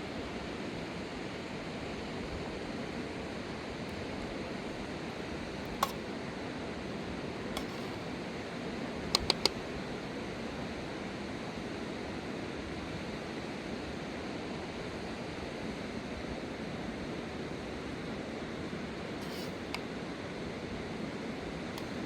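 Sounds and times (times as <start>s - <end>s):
faint clicks: 9.2s - 9.6s.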